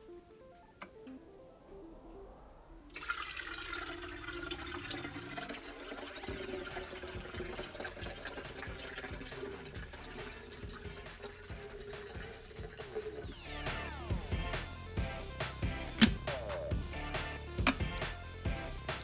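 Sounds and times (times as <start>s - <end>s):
small clicks and gliding tones: 0.0s - 3.1s
water running and splashing: 2.9s - 14.2s.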